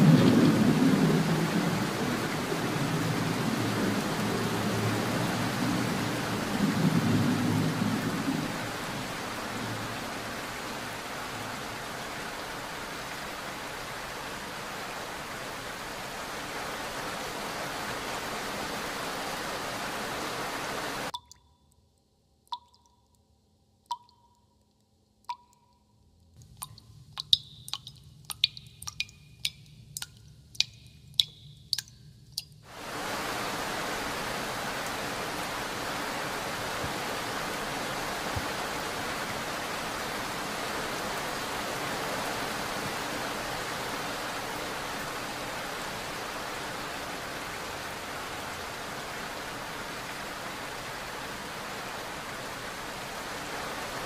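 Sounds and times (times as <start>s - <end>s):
water rushing: 0.0s - 21.4s, 26.4s - 54.0s
water drops pinging in steel dishes: 21.1s - 21.9s, 22.5s - 23.2s, 23.9s - 32.7s.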